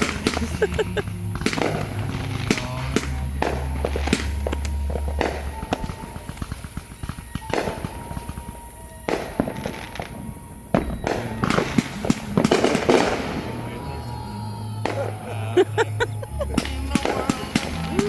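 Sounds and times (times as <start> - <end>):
fireworks bangs and crackles: 0.0 - 14.2, 14.8 - 18.0
music soundtrack: 11.1 - 18.0.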